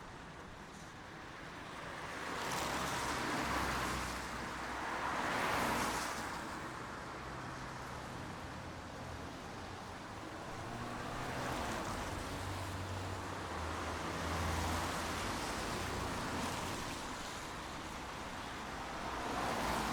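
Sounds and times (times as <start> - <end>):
steady rain: 10.0 - 19.9.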